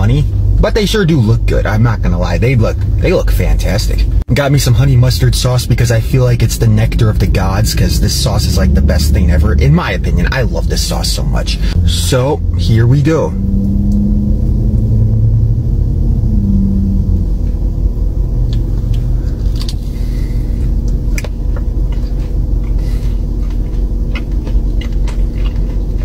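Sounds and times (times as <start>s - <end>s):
car engine idling: 0.0s - 26.0s
chewing fried chicken crunches: 20.6s - 26.0s.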